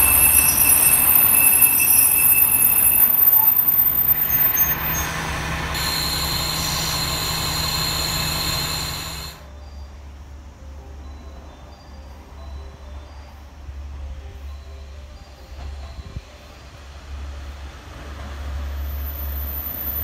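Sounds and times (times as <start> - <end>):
wheel squeal: 0.0 - 9.4, 18.7 - 20.0
train running on track: 0.0 - 20.0.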